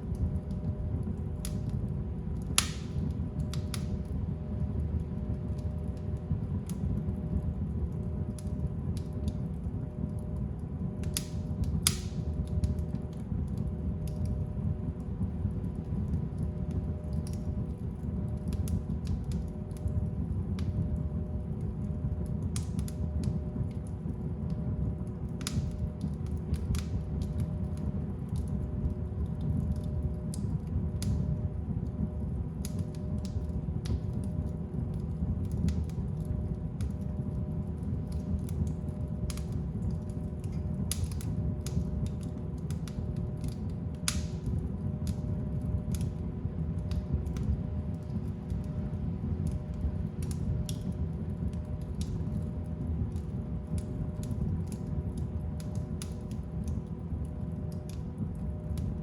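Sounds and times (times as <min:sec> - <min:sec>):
fire crackles and pops: 0:00.0 - 0:59.0
low rumble of flames: 0:00.0 - 0:59.0.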